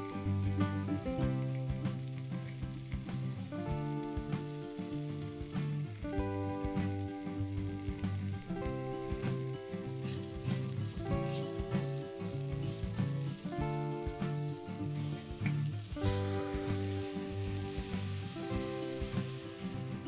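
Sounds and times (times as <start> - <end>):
instrumental background music: 0.0 - 20.0
vegetables sizzling in oil: 0.0 - 20.0
water pouring into pot: 0.1 - 20.0.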